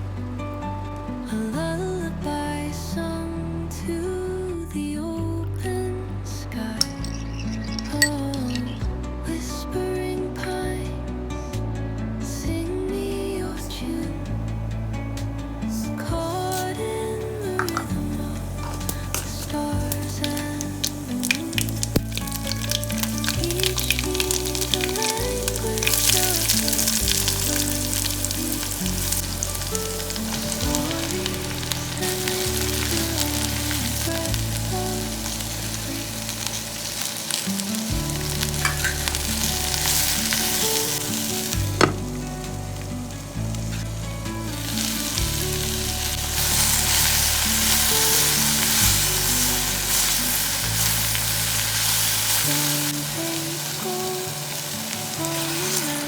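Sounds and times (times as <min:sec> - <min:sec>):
soft background music: 0:00.0 - 0:56.0
food sizzling in hot oil: 0:06.8 - 0:08.8, 0:15.7 - 0:56.0
stirring in a pan: 0:16.1 - 0:56.0.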